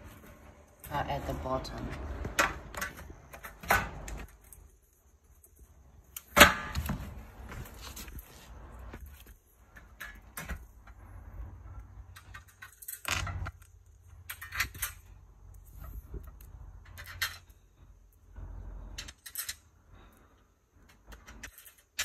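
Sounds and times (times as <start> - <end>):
metal parts clinking and knocking: 12.0 - 15.6, 16.2 - 17.7, 18.9 - 19.8, 20.9 - 22.0.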